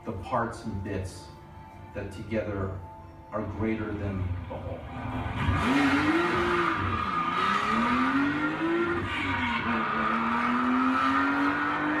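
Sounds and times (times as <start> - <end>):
car engine accelerating hard: 4.8 - 12.0.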